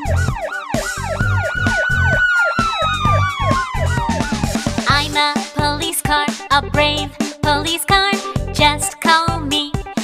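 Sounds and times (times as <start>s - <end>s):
yelping police siren: 0.0s - 4.8s
children's song with drum beat: 0.0s - 10.0s.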